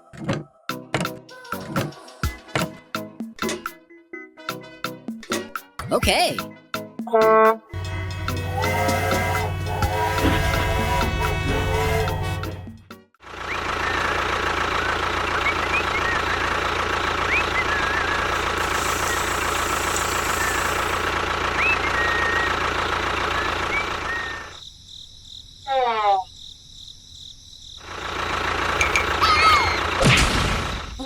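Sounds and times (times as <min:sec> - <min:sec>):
small motor running: 0:07.8 - 0:12.4, 0:13.8 - 0:24.6.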